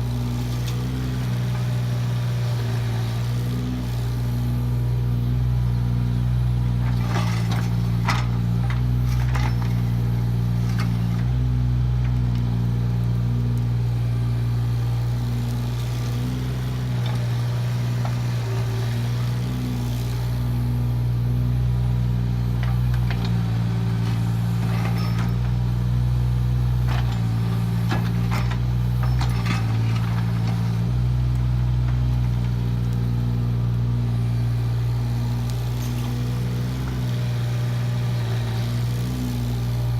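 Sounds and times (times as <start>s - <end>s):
excavator diesel engine running: 0.0s - 39.9s
metal clanks and scrapes: 6.9s - 9.8s, 24.0s - 25.5s, 26.9s - 30.7s, 35.6s - 36.2s.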